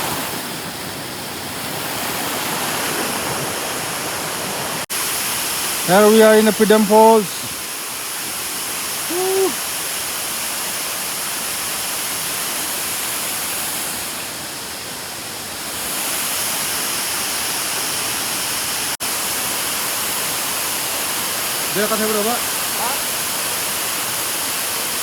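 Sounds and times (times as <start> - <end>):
waterfall roaring: 0.0 - 25.0
person shouting woo: 9.0 - 9.6.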